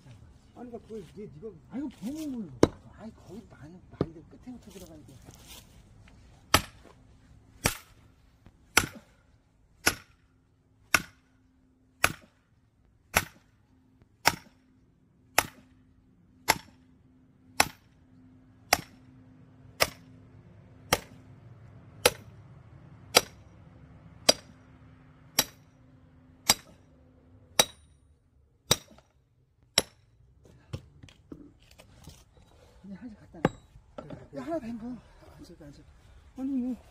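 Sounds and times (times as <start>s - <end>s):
hammer striking steel wedge: 2.6s - 2.8s, 6.5s - 6.8s, 7.6s - 8.0s, 8.7s - 9.2s, 9.8s - 10.2s, 10.9s - 11.3s, 12.0s - 12.4s, 13.1s - 13.5s, 14.2s - 14.6s, 15.3s - 15.8s, 16.4s - 16.8s, 17.6s - 18.0s, 18.7s - 19.0s, 19.8s - 20.1s, 20.9s - 21.2s, 22.0s - 22.3s, 23.1s - 23.5s, 24.2s - 24.6s, 25.3s - 25.7s, 26.4s - 26.8s, 27.5s - 28.0s, 28.7s - 29.1s, 29.7s - 30.1s, 33.4s - 33.7s.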